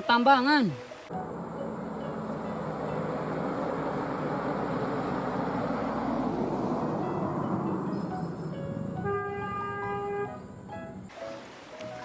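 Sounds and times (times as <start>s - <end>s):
heavy truck engine running: 1.1s - 9.1s.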